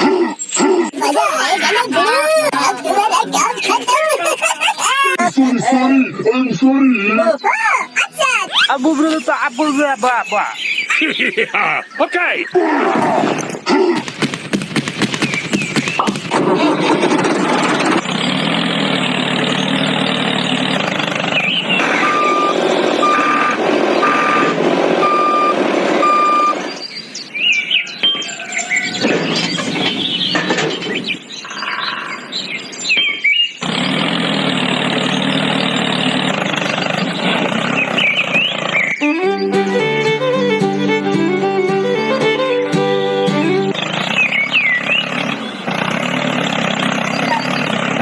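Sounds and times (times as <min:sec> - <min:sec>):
heavy vehicle engine running: 0:14.0 - 0:27.5, 0:33.6 - 0:48.0
reversing alarm beeps: 0:21.8 - 0:26.6.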